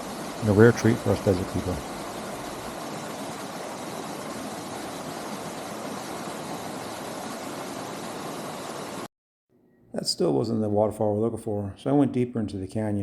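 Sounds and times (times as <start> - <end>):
waterfall pouring into pool: 0.0 - 9.1.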